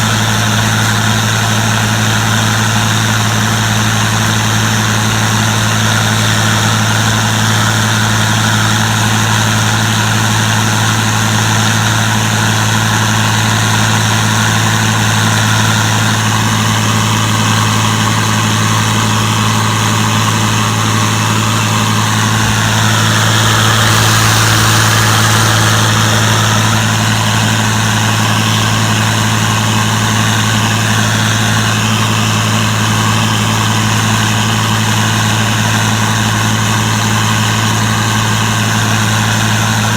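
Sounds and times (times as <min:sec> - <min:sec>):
combine harvester engine hum: 0:00.0 - 0:39.9
high hiss: 0:20.0 - 0:29.9.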